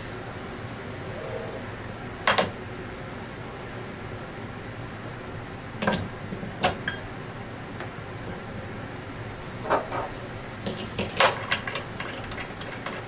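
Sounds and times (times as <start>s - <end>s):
room noise: 0.0s - 13.0s
metal tools clinking on workbench: 10.6s - 12.9s.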